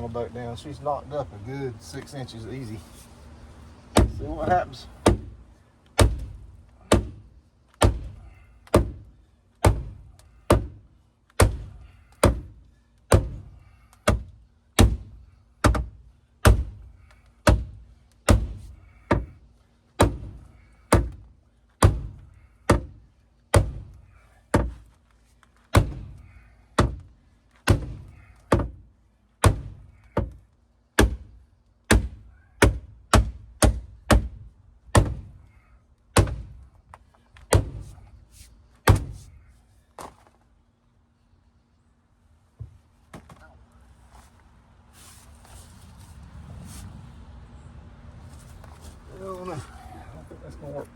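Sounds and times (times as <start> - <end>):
sledgehammer thunks on sheet metal: 18.3 - 19.3, 20.0 - 21.2, 25.7 - 26.1, 27.6 - 28.8, 29.4 - 30.3, 31.9 - 35.3, 36.2 - 36.6, 37.5 - 37.9, 38.8 - 39.2.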